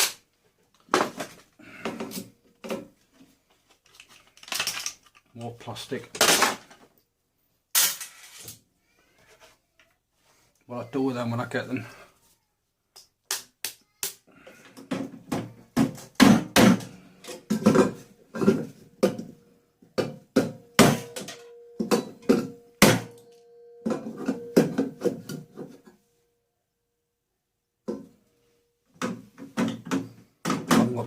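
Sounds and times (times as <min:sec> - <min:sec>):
hammer striking metal: 0:20.4 - 0:25.5.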